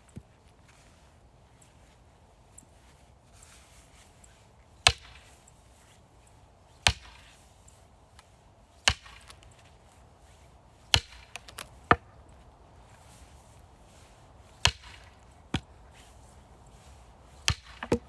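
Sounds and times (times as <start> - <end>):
axe chopping firewood: 4.9 - 5.3, 6.8 - 7.4, 8.8 - 9.5, 10.9 - 12.3, 14.5 - 15.9, 17.3 - 18.0
wood knocking: 17.5 - 18.0.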